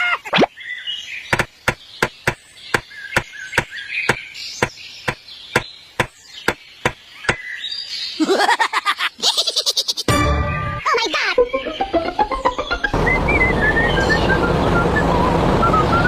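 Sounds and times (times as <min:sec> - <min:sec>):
sharp knocks on hard surface: 0:01.3 - 0:07.4.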